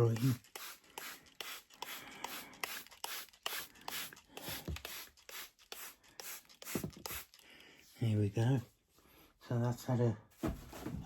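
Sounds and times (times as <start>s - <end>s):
spray bottle squirting water: 0.0s - 7.4s.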